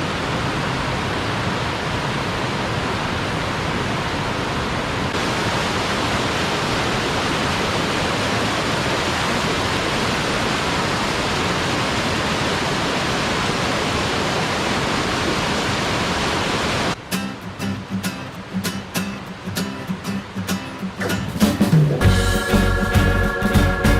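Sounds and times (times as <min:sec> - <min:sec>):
rushing stream water: 0:00.0 - 0:23.9.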